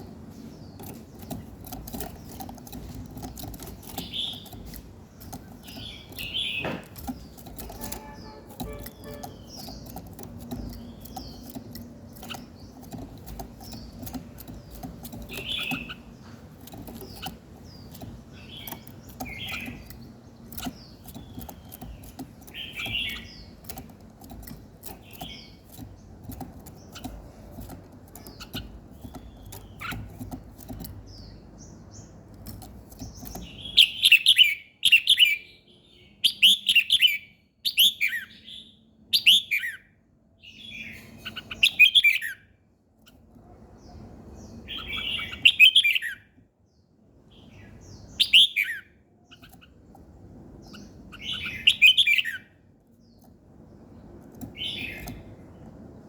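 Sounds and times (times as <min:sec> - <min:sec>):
songbird chirping: 0:00.0 - 0:56.0.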